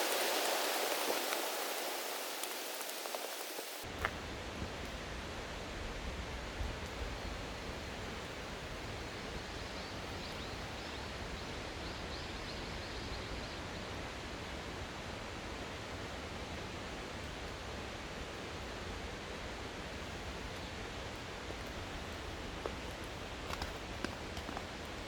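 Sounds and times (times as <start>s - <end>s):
mountain stream rushing: 0.0s - 3.9s.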